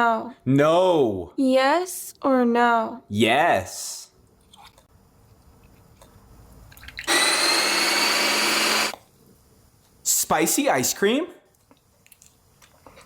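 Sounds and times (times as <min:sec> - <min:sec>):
blender motor whine: 0:07.1 - 0:09.0.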